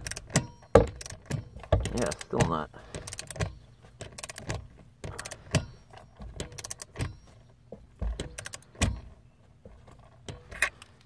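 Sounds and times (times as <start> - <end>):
ratchet wrench clicking: 3.0 - 5.7.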